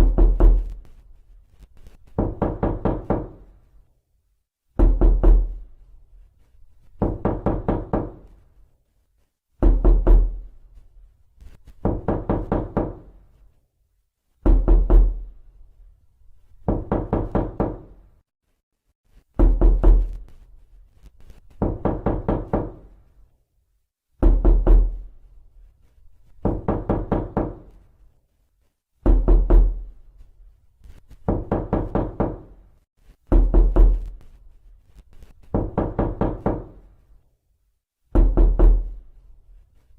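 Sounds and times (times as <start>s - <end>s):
rapid knocking on door: 0.0s - 0.8s, 2.1s - 3.5s, 4.8s - 5.6s, 7.0s - 8.3s, 9.6s - 10.4s, 11.8s - 13.1s, 14.4s - 15.3s, 16.6s - 18.0s, 19.4s - 20.2s, 21.6s - 22.9s, 24.2s - 25.0s, 26.4s - 27.8s, 29.0s - 29.9s, 31.2s - 32.6s, 33.3s - 34.1s, 35.5s - 36.8s, 38.2s - 38.9s.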